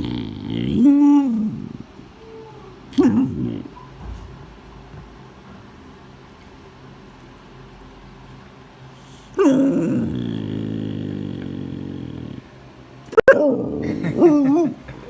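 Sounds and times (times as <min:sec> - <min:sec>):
dog growling: 0:00.0 - 0:02.0, 0:02.9 - 0:03.8, 0:09.3 - 0:14.4
dog whining: 0:00.0 - 0:04.0, 0:09.3 - 0:12.5.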